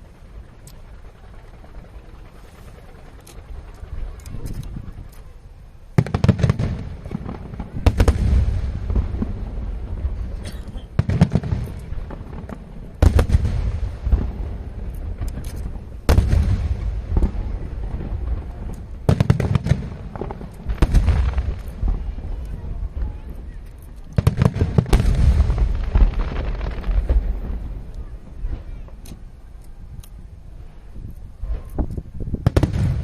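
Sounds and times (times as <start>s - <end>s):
firework booms with echoing rumble: 5.9s - 23.5s, 24.1s - 29.0s, 31.4s - 33.0s
firework pops and crackles: 6.0s - 30.3s, 31.2s - 33.0s.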